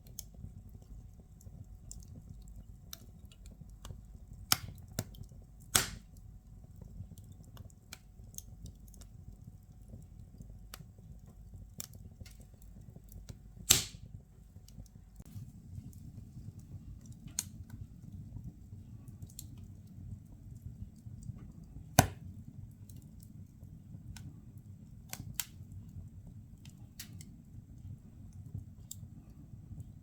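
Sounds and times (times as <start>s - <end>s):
firewood crackling snaps: 0.0s - 18.5s, 19.2s - 24.3s, 24.9s - 25.9s, 26.6s - 27.4s
fire rumble: 0.0s - 30.0s
loud sharp pops: 13.7s - 14.1s.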